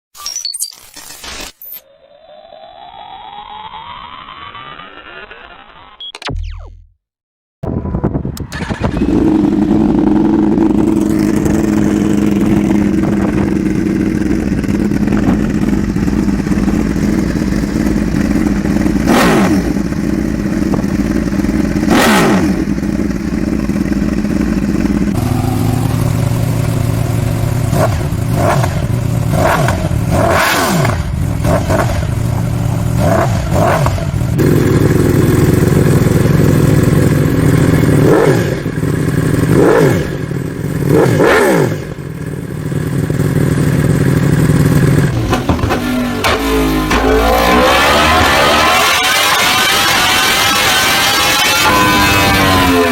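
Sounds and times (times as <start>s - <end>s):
motorcycle throttle blips: 7.8s - 52.9s
motorcycle idling loudly: 8.6s - 30.2s, 30.8s - 46.1s.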